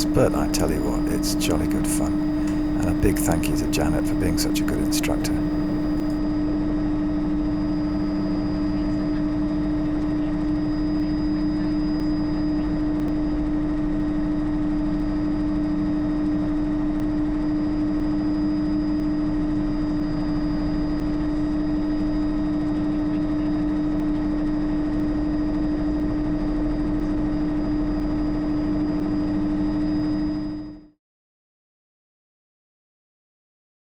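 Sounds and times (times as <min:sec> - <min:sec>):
helicopter turbine and rotors: 0:00.0 - 0:06.2.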